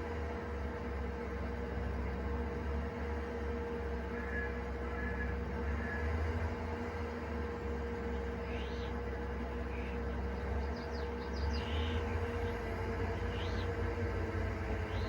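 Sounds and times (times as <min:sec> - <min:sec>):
swather engine droning: 0:00.0 - 0:15.0
birds chirping: 0:07.8 - 0:15.0.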